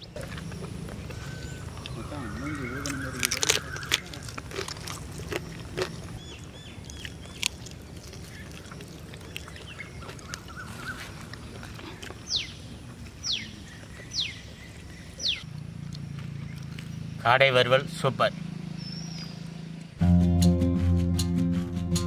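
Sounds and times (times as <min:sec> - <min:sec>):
bird chirping and calling: 0:00.0 - 0:11.6, 0:12.2 - 0:15.5, 0:18.1 - 0:20.0
steady low hum: 0:00.0 - 0:22.0.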